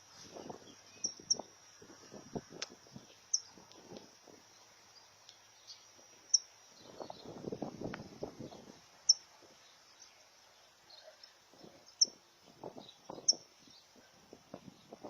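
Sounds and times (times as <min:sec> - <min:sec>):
faint high insect drone: 0:00.0 - 0:15.0
bird chirping: 0:00.4 - 0:01.5, 0:02.8 - 0:03.7, 0:04.5 - 0:07.4, 0:08.5 - 0:15.0.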